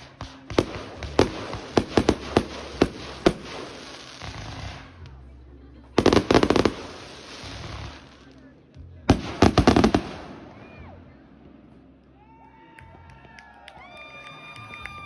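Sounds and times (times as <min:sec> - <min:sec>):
fireworks bangs and crackle: 0:00.0 - 0:05.2, 0:06.0 - 0:12.2.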